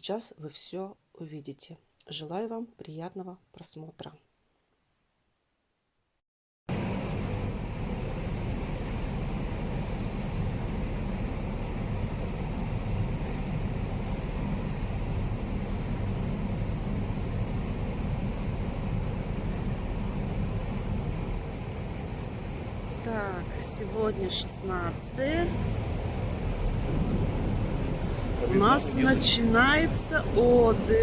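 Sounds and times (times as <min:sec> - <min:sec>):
ferry engine droning: 0:06.7 - 0:31.0.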